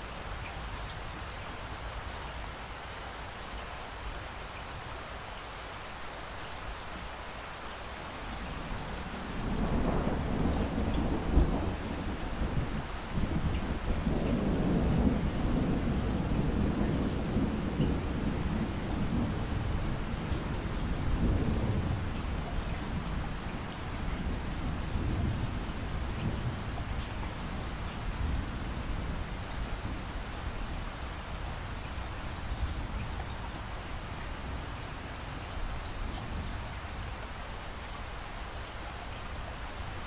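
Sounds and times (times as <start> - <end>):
steady rainfall: 0.0 - 40.0
low rolling thunder: 8.6 - 31.7.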